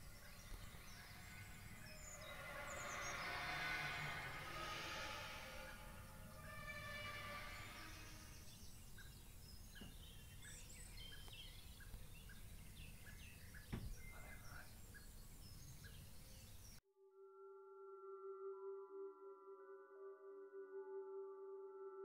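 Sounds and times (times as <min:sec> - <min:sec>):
droning trumpet-like tones in sky: 0:00.0 - 0:09.2, 0:17.2 - 0:22.0
low rumble: 0:00.0 - 0:09.2
birds chirping: 0:00.0 - 0:16.8
knocks: 0:13.6 - 0:14.0.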